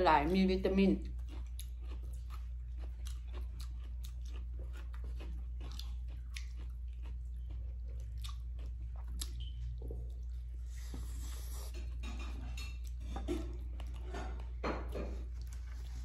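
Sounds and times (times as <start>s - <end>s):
people chewing: 0.2s - 16.0s.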